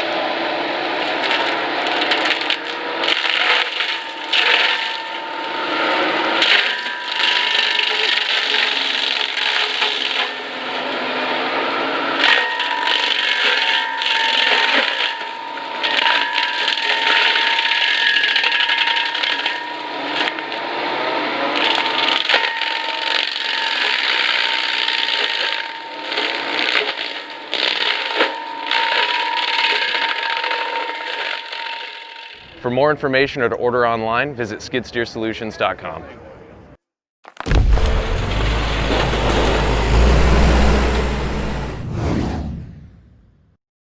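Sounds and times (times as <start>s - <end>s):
wood cracking and splintering: 1.0s - 5.5s, 6.4s - 10.4s, 12.2s - 20.6s, 21.6s - 32.4s, 37.3s - 40.2s
mulcher rotor whining: 37.5s - 43.2s.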